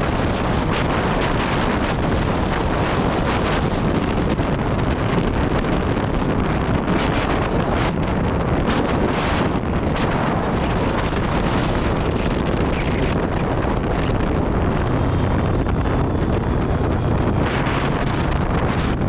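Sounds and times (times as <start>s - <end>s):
wind buffeting microphone: 0.0s - 19.0s
motorcycle engine running: 11.2s - 19.0s.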